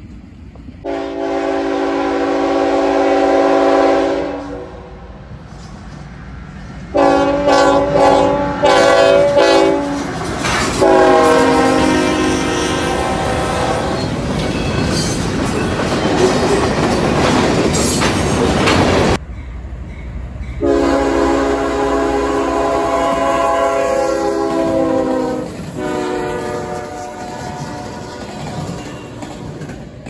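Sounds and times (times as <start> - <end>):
locomotive horn blast: 0.8 - 5.0, 6.9 - 10.1, 10.7 - 14.1, 20.6 - 28.8
freight train wheels clattering: 5.3 - 20.6, 24.3 - 30.0.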